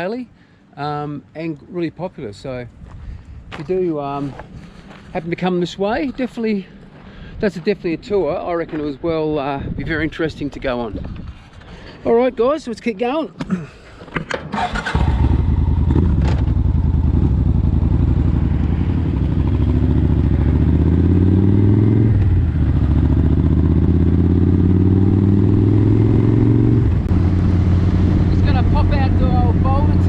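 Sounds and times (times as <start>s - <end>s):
motorcycle engine accelerating: 14.5s - 30.0s.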